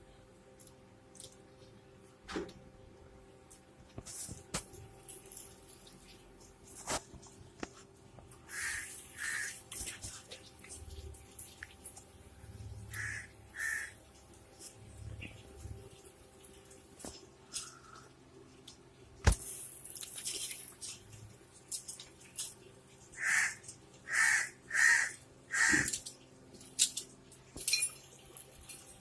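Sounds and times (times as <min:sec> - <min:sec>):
bird harsh calls: 0:08.5 - 0:09.6, 0:12.9 - 0:14.0, 0:23.2 - 0:26.0.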